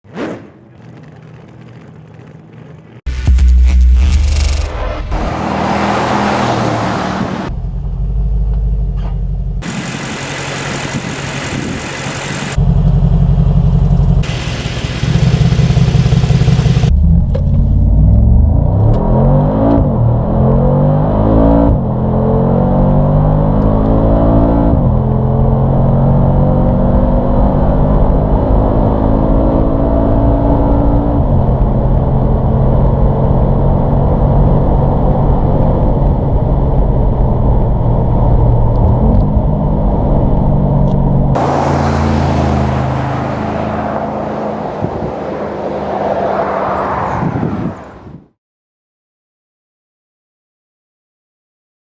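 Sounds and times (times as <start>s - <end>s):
car engine accelerating hard: 4.0s - 7.6s, 13.4s - 47.8s.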